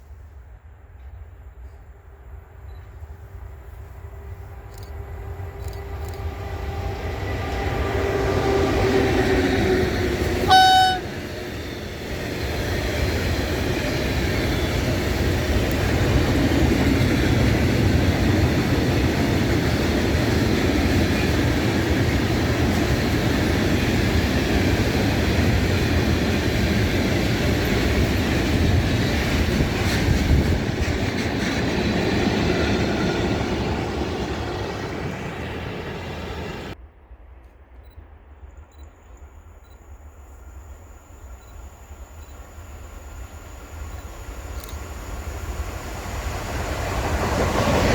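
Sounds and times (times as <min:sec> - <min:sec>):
train passing: 0:00.0 - 0:47.9
train horn blast: 0:10.3 - 0:11.4.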